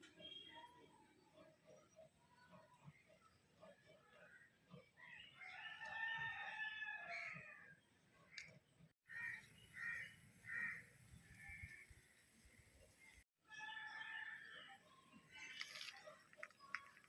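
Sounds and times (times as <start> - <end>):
rooster crowing: 5.4 - 7.5.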